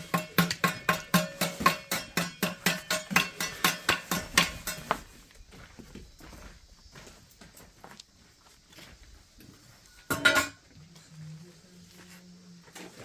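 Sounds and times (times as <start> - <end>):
rapid ringing percussive knocks: 0.0 - 4.9.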